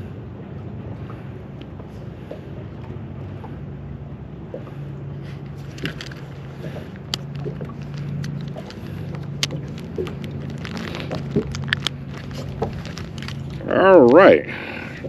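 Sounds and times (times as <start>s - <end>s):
steady low hum: 0.0s - 15.0s
clicks and taps of handling gear: 5.6s - 6.3s, 7.0s - 13.6s.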